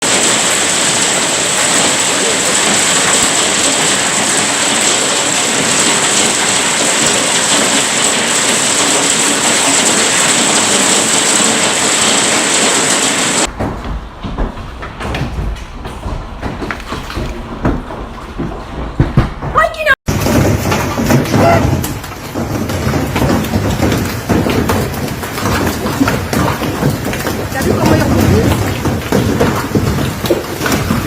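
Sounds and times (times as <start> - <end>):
hail clattering on hard surfaces: 0.0 - 15.6, 16.4 - 31.0.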